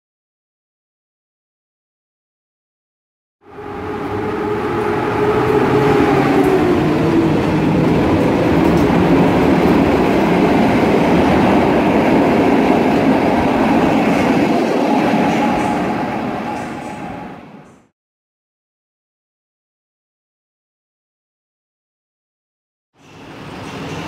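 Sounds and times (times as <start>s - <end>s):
falling whine: 3.4s - 17.6s
train wheels rolling on rails: 3.5s - 17.9s.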